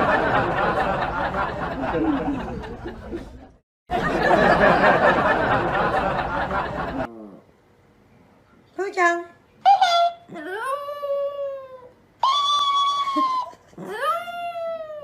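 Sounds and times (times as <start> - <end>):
people chattering and laughing: 0.0 - 7.1.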